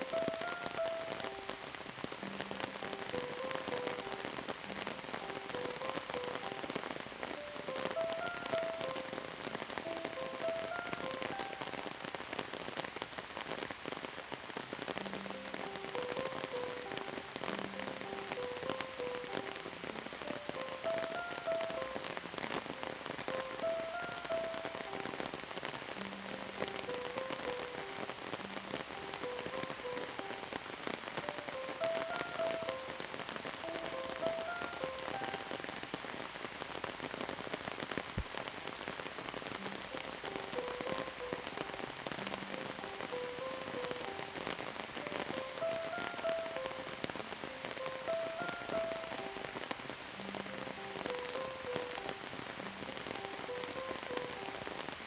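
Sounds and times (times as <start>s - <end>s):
soft melody of short notes: 0.0s - 1.7s, 2.3s - 11.8s, 15.1s - 25.3s, 31.3s - 35.7s
rain falling: 0.0s - 55.0s.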